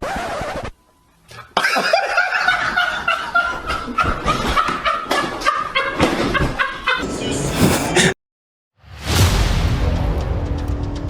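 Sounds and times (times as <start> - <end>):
people laughing: 7.0 - 8.2.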